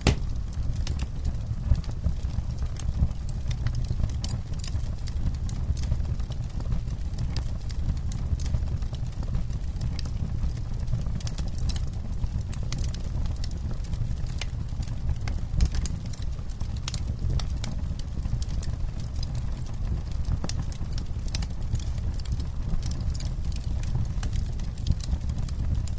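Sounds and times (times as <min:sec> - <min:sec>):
campfire crackling and popping: 0:00.0 - 0:25.9.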